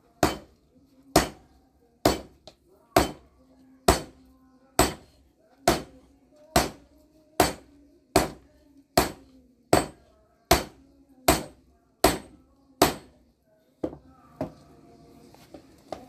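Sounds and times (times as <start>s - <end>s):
hammer striking hot steel: 2.0s - 2.4s, 4.8s - 5.0s, 7.4s - 7.6s, 9.8s - 10.7s, 11.3s - 13.1s.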